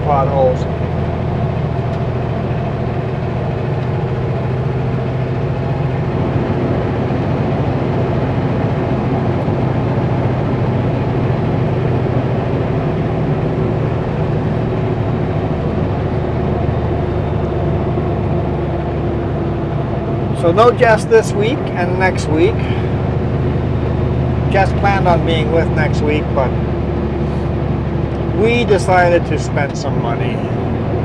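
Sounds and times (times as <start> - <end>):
truck diesel engine droning: 0.0 - 31.0.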